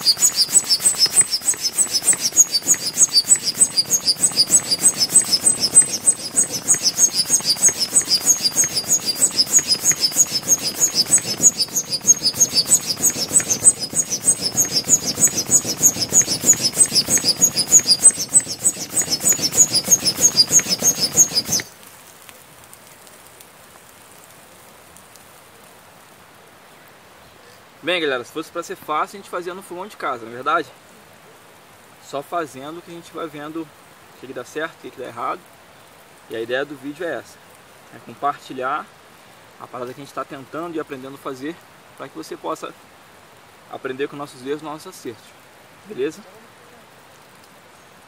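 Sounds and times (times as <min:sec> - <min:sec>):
bird chirping rapidly: 0:00.0 - 0:21.8.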